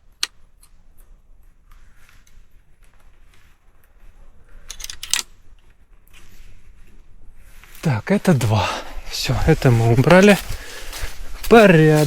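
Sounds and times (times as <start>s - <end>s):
low steady background noise: 0.0s - 12.0s
small clicks and scrapes: 0.2s - 7.8s.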